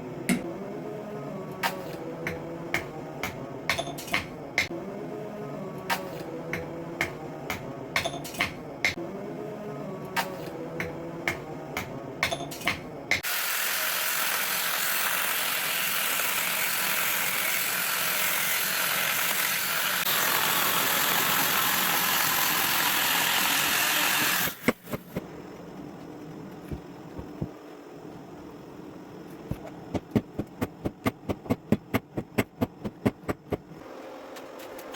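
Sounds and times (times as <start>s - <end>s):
power tool grinding steel blade: 13.2s - 24.6s.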